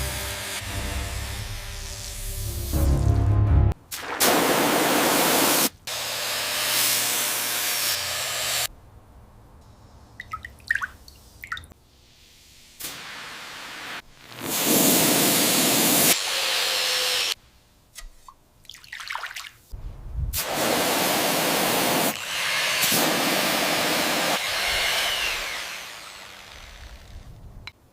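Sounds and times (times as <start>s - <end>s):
hissing spray bursts: 12.0s - 16.2s, 20.4s - 22.2s.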